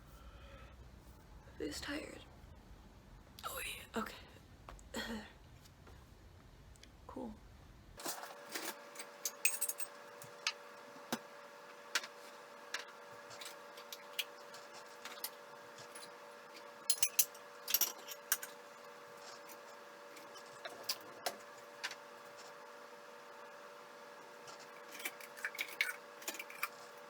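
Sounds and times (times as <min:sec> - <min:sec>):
steady background hum: 0:00.0 - 0:27.0
dishes and cutlery clinking: 0:16.9 - 0:18.6.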